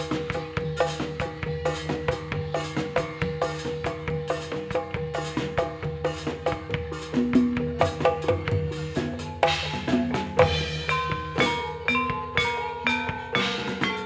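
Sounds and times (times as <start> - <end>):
drum beats: 0.0 - 14.0
metal bars struck in interlocking pattern: 0.0 - 14.0
held ringing tone: 9.2 - 14.0.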